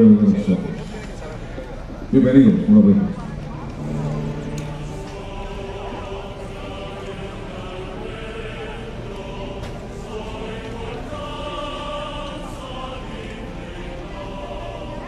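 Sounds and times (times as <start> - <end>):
group of voices singing: 2.1 - 15.0
music: 3.2 - 15.0.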